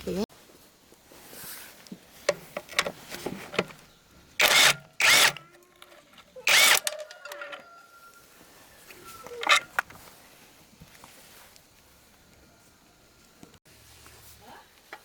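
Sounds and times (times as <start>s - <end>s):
metal scraping: 2.3s - 3.8s, 4.4s - 7.8s, 9.0s - 9.9s
metal clicks: 2.3s - 7.7s, 9.3s - 10.0s
metal ringing: 6.5s - 7.8s.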